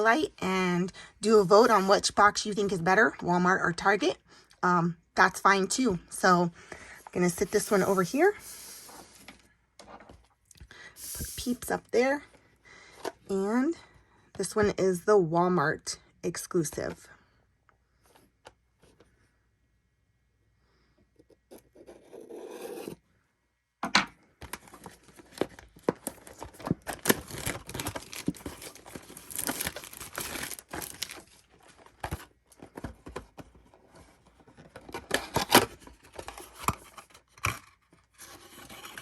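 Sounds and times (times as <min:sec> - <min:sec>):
plastic shrink wrap tearing: 0:26.8 - 0:31.4.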